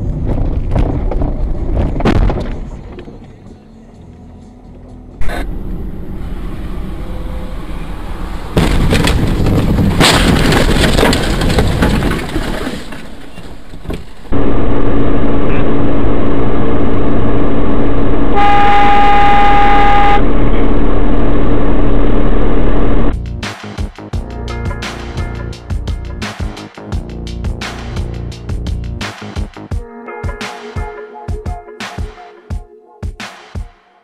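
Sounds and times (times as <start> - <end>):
road and vehicle noise: 0.0 - 23.5
car horn: 18.4 - 20.3.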